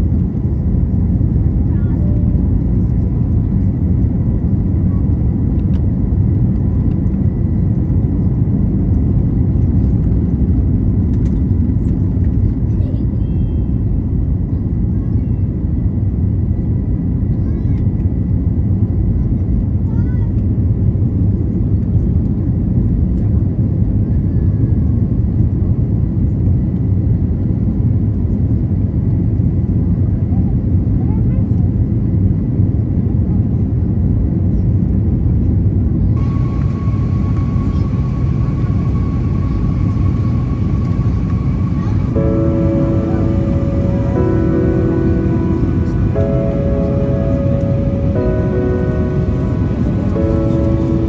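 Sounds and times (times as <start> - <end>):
aircraft cabin engine rumble: 0.0 - 15.7, 35.9 - 51.0
airplane cabin engine rumble: 36.1 - 51.0
faint steady whine: 36.2 - 51.0.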